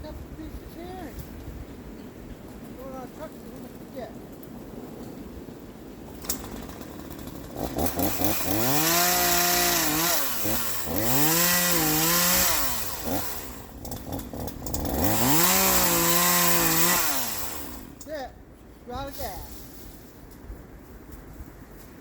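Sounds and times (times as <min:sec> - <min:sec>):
chainsaw revving: 0:06.1 - 0:18.1.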